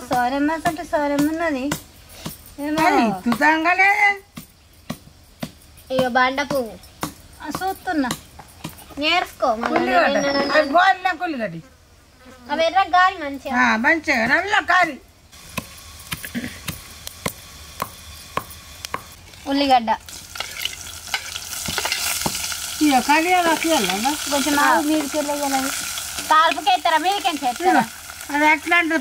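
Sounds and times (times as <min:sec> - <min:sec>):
food sizzling in a pan: 0:15.3 - 0:29.0.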